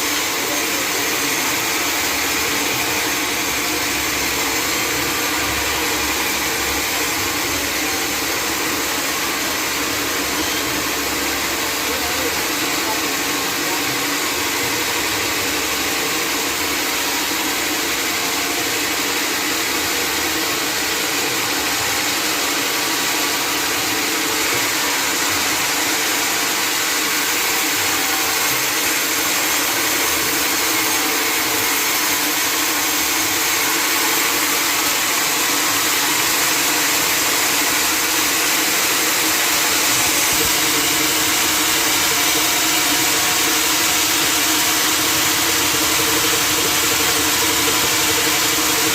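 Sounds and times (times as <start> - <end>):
band saw mill motor: 0.0 - 48.9.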